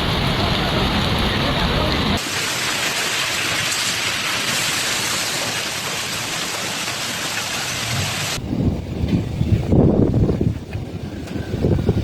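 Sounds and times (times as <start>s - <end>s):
heavy rain hissing: 0.0s - 9.0s.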